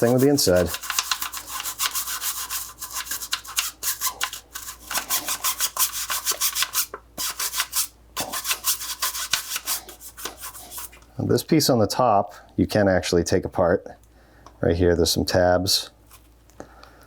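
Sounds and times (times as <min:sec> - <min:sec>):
toothbrush scrubbing metal mesh: 0:00.0 - 0:10.9.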